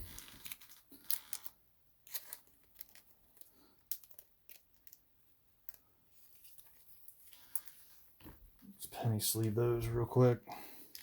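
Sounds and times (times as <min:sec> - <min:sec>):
cards and packaging rustling: 0:00.0 - 0:08.6.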